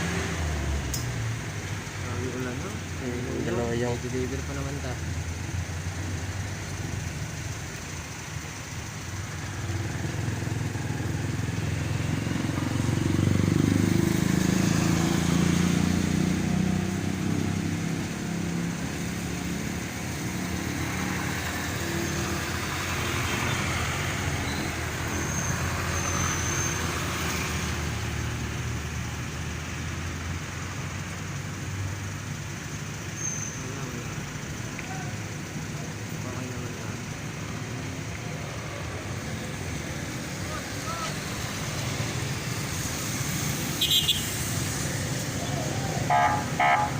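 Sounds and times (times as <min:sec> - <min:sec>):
vehicle engine running: 0:00.0 - 0:26.7, 0:27.8 - 0:46.9
traffic noise: 0:00.0 - 0:46.9.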